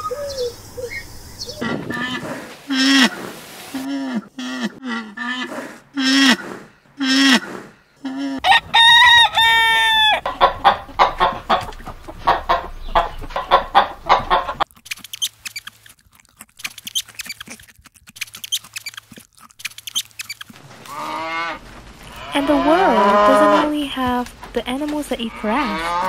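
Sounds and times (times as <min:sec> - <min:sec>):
chickens clucking: 0:00.0 - 0:15.7, 0:19.9 - 0:26.0
rooster crowing: 0:08.4 - 0:10.6
animal chewing grass: 0:10.3 - 0:26.0.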